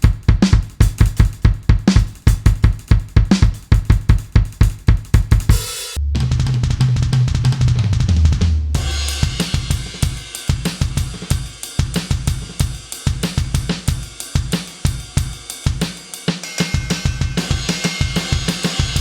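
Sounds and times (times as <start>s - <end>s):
electronic drum groove: 0.0s - 7.7s, 8.8s - 19.0s
low booming note: 6.0s - 8.2s.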